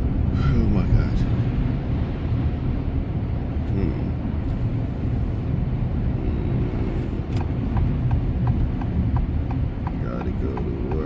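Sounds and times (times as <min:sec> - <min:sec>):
car rumbling through snow: 0:00.0 - 0:11.0
light regular ticking: 0:07.4 - 0:11.0.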